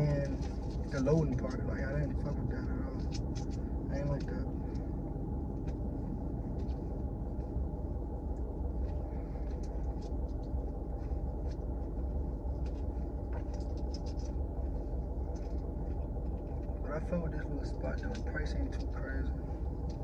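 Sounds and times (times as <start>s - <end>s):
car rumble and hum: 0.0s - 20.0s.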